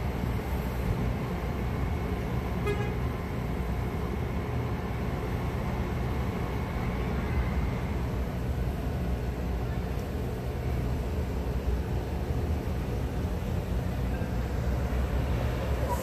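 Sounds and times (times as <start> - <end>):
train rumbling at platform: 0.0 - 16.0.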